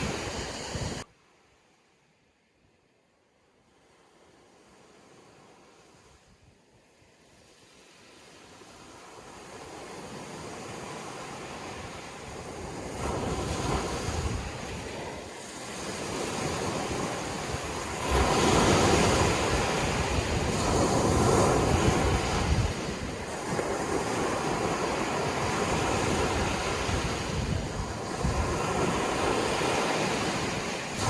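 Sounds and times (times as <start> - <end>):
wind buffeting microphone: 0.0 - 1.0, 9.6 - 31.0
sea waves breaking: 0.0 - 1.1, 3.7 - 31.0.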